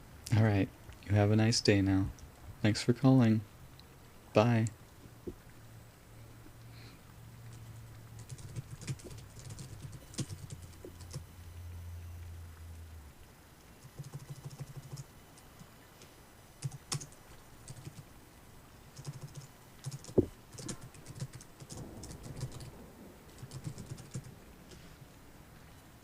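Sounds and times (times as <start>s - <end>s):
keyboard typing clicks: 8.2s - 11.2s, 13.9s - 15.5s, 16.6s - 18.0s, 19.0s - 22.7s.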